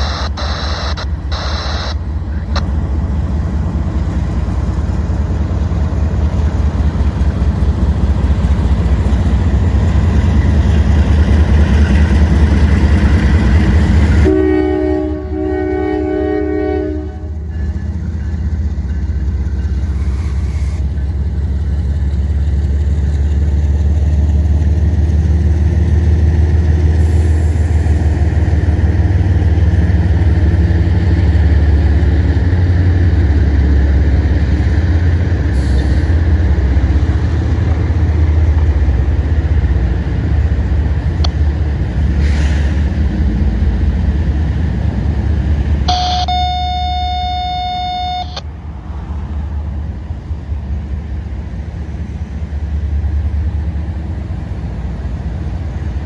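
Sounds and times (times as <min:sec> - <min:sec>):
freight train rumbling past: 0:00.0 - 0:56.0
single-pitched horn tone: 0:45.9 - 0:48.5.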